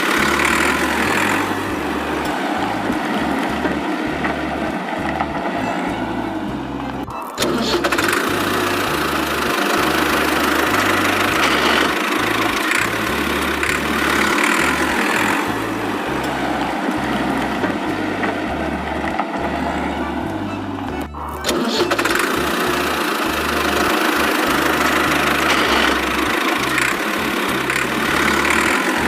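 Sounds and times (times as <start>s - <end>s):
low bass line: 0.0s - 29.0s
tractor engine running: 0.0s - 29.0s.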